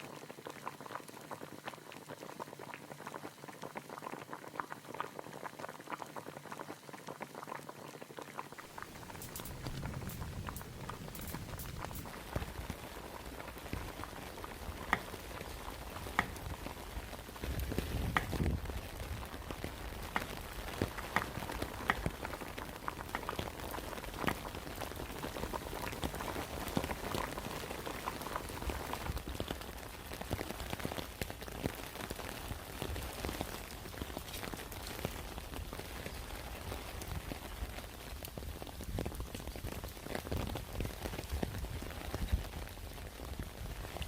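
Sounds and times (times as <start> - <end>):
heavy rain pouring: 8.6 - 29.2.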